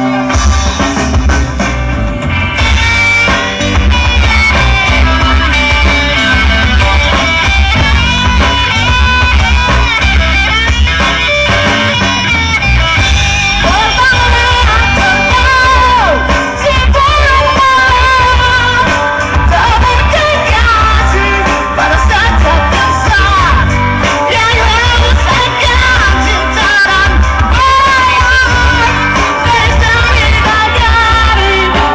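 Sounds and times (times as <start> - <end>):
pulsing bass: 0.0 - 31.9
rock band playing live: 0.0 - 31.9
person singing: 13.5 - 31.9.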